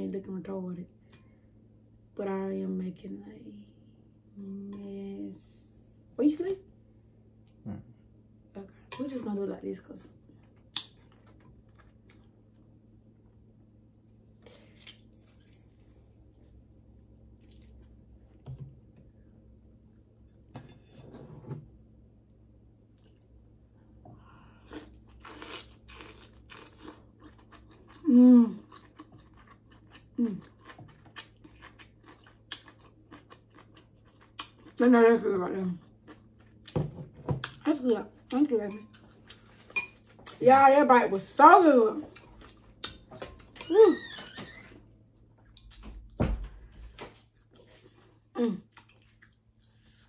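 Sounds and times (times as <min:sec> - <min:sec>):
person humming mmm: 0:07.6 - 0:07.9, 0:28.0 - 0:28.6
chewing and crunching food: 0:10.2 - 0:12.8, 0:14.0 - 0:18.4, 0:24.5 - 0:40.4, 0:42.0 - 0:43.6, 0:46.8 - 0:50.0.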